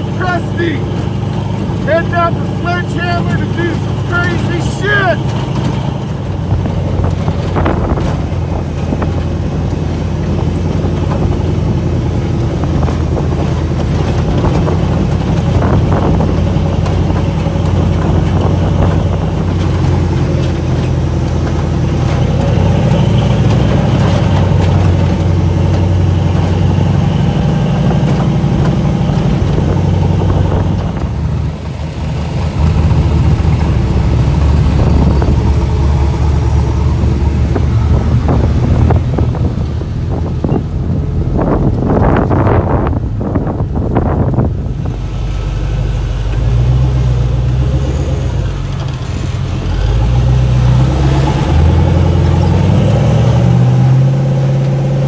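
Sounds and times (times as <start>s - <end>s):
off-road vehicle engine running: 0.0s - 55.0s.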